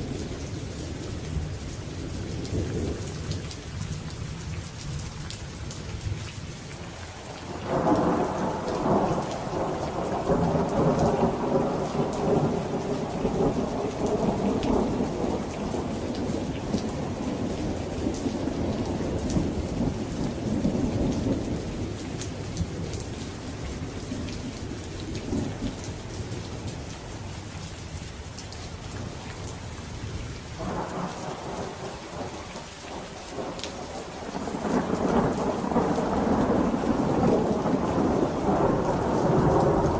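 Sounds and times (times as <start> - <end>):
rain falling: 0.0 - 39.9
thunder rumbling: 7.5 - 26.4, 30.6 - 32.3, 32.9 - 39.9.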